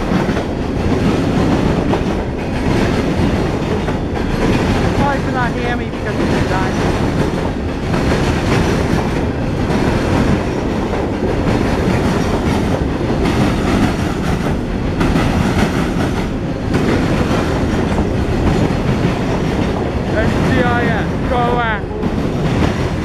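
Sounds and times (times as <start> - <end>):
steel wheels rumbling on rail: 0.0 - 23.0
wheels clacking over rail joints: 0.0 - 23.0.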